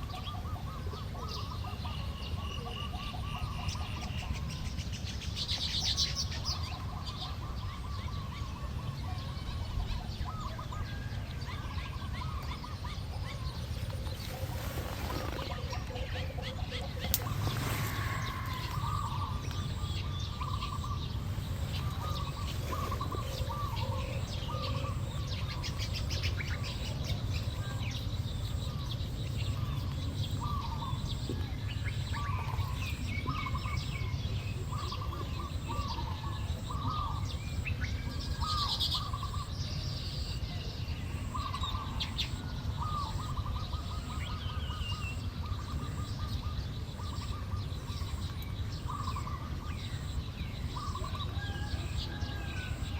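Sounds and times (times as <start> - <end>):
weaver birds chirping: 0.0 - 52.9
steady low rumble: 11.9 - 34.7.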